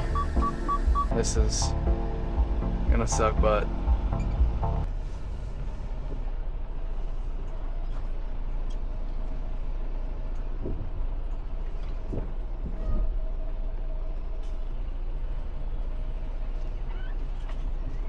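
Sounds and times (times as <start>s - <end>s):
low thuds: 0.0s - 4.9s
diesel truck engine running: 0.0s - 18.0s.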